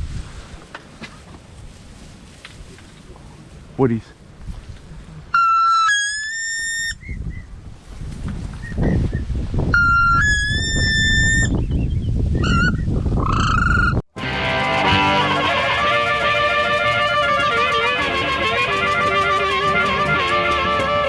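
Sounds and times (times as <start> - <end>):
rising whistled calls: 5.3 - 7.6, 8.6 - 14.0.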